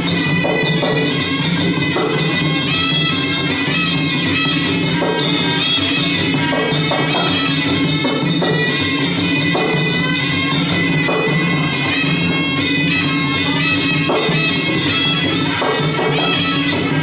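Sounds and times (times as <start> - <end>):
hand drums: 0.0 - 17.0
reed oboe melody: 12.7 - 17.0.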